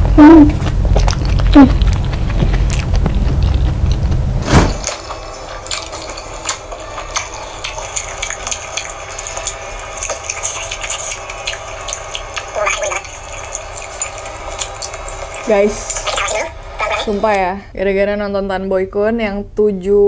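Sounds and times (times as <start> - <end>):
strong low hum: 0.0 - 5.8
person chewing and eating: 0.0 - 17.3.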